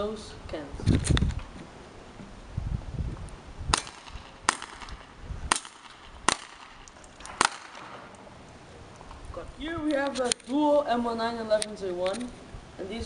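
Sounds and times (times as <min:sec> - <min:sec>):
airsoft pistol shots: 0:03.7 - 0:08.1.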